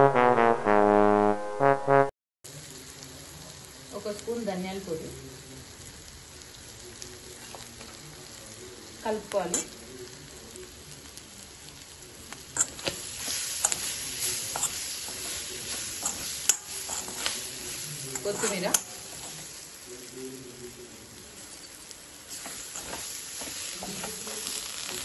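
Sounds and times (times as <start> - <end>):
meat sizzling in oil: 2.5 - 25.0
spatula scraping and knocking pan: 12.6 - 19.6, 21.5 - 24.7.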